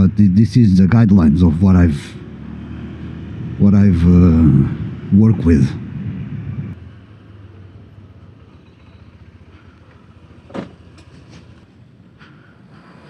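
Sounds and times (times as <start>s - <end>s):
motorcycle engine running: 1.2s - 11.6s.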